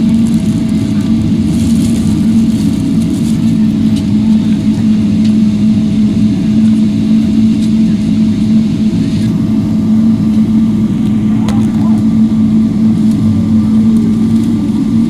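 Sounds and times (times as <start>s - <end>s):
vehicle rumble from inside: 0.0s - 5.5s, 9.2s - 15.0s
constant low hum: 0.0s - 15.0s.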